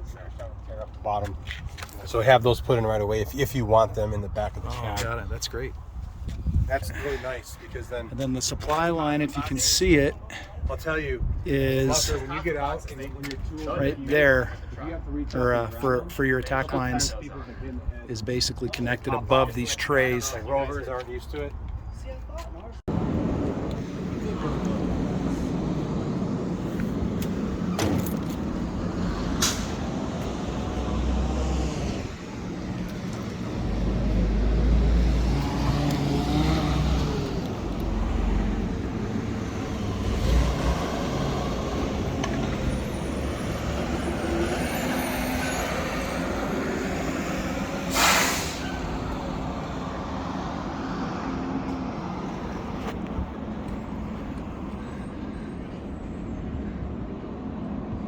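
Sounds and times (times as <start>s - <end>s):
fire engine running: 22.9s - 31.3s
air brakes hissing: 29.3s - 29.9s, 47.4s - 49.1s.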